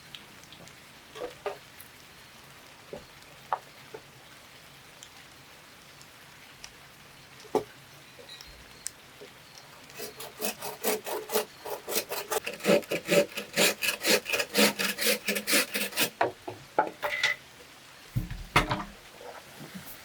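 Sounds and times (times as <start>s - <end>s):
hand tool rasping bamboo: 9.9s - 16.2s
dull knock: 18.2s - 18.9s.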